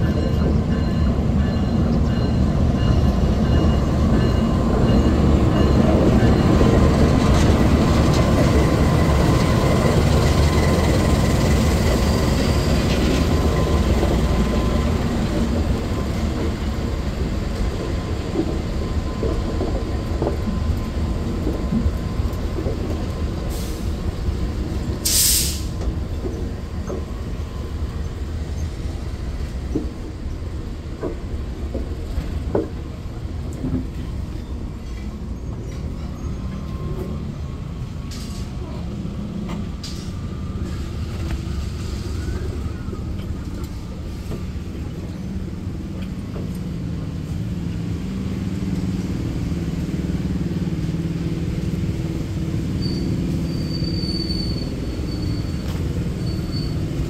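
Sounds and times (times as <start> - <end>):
train rumbling past: 0.0 - 57.0
brief hiss: 25.0 - 25.8.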